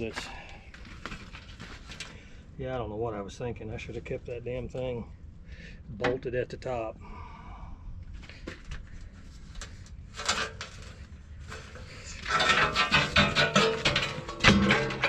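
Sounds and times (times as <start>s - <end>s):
metal tools clanking on steel: 11.5s - 15.0s.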